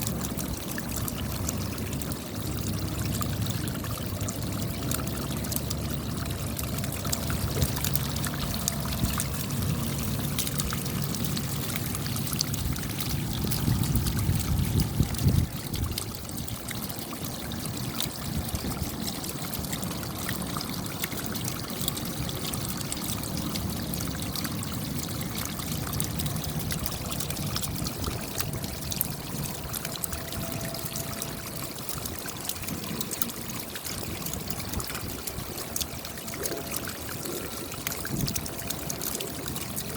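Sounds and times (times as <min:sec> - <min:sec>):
low rush of water: 0:00.0 - 0:39.9
raindrops ticking: 0:00.0 - 0:39.9
running water: 0:00.0 - 0:39.9.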